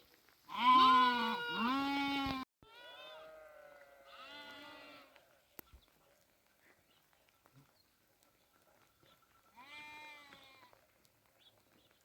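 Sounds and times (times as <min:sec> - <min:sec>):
sheep bleating: 0:00.5 - 0:05.4, 0:09.5 - 0:10.8.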